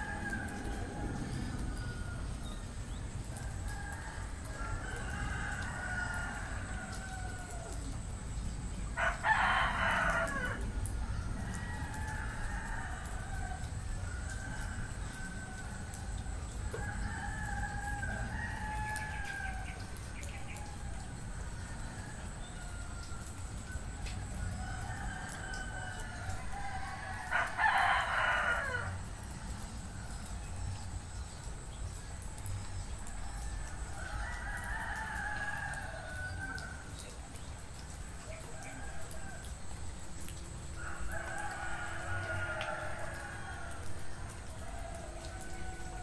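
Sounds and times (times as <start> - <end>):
roosters crowing: 9.0 - 30.2, 33.4 - 36.9, 40.8 - 46.0.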